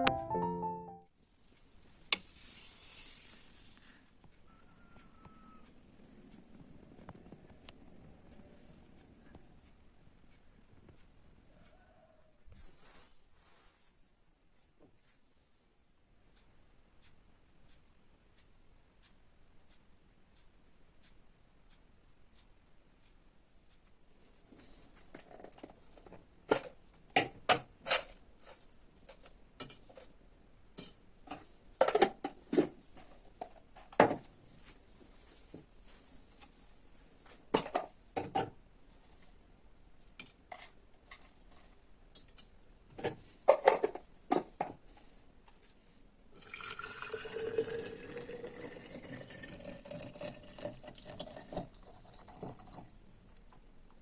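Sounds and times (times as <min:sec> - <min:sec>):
liquid pouring into cup: 0:46.4 - 0:52.9.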